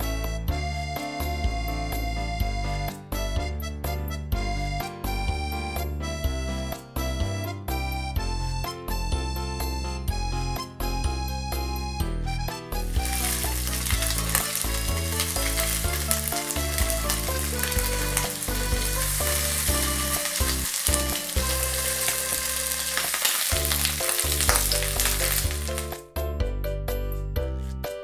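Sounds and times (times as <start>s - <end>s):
light background music: 0.0s - 28.0s
food sizzling in oil: 12.9s - 26.0s.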